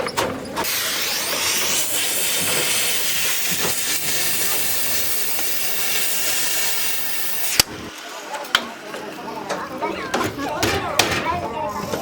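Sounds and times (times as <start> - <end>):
compressed air hissing: 0.6 - 7.7.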